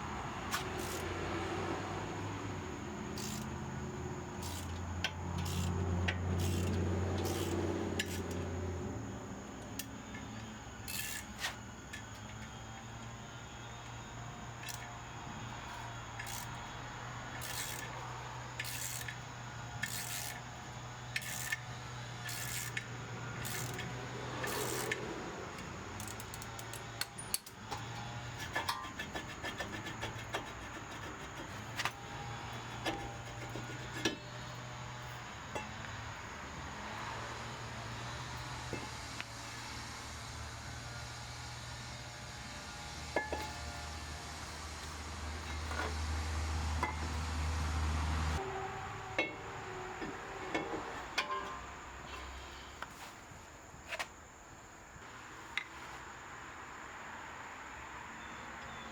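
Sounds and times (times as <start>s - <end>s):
metal tools clicking and clinking: 17.4s - 17.9s, 22.2s - 25.0s, 26.0s - 29.0s.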